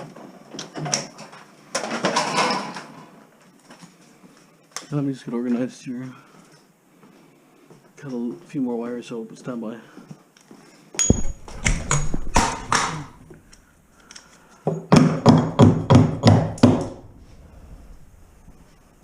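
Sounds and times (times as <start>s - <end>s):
metal knocking and clanking: 11.0s - 13.6s
metallic ping: 11.0s - 13.6s.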